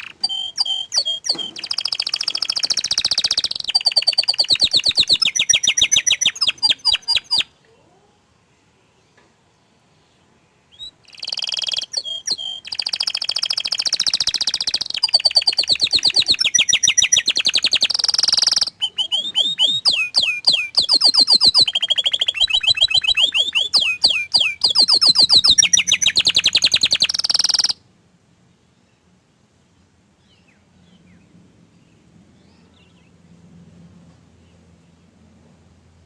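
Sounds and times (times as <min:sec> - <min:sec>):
canary singing trills: 0:00.0 - 0:08.1, 0:10.7 - 0:27.8.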